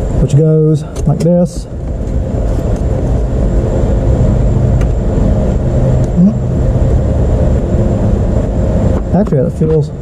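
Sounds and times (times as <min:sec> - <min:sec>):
engine rumbling: 0:00.0 - 0:10.0.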